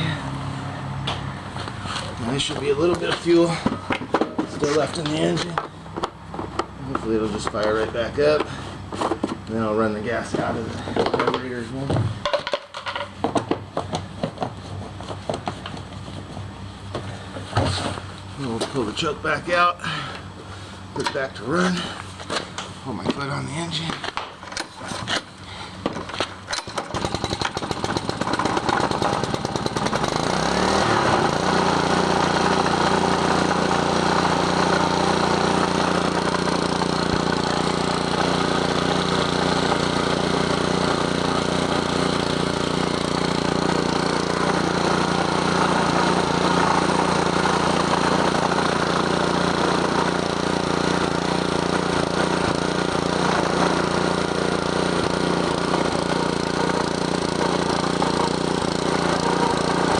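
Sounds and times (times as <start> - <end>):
small engine starting and running: 0.0 - 11.8, 24.6 - 59.9.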